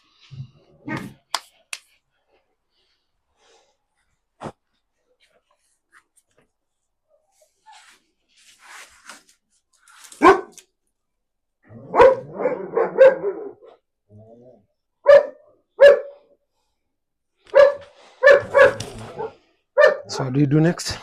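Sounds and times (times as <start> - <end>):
dog barking: 10.2 - 10.6, 11.8 - 13.7, 15.0 - 16.2, 17.5 - 20.4.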